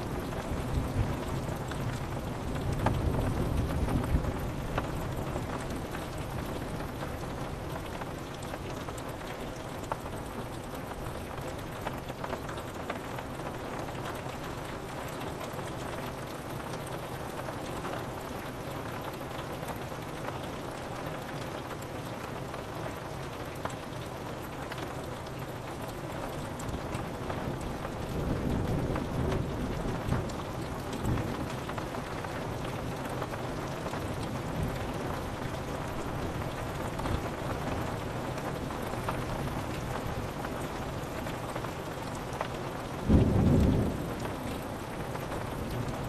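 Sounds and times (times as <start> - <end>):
rain pattering on window glass: 0.0 - 46.0
thunder rumble: 43.0 - 46.0.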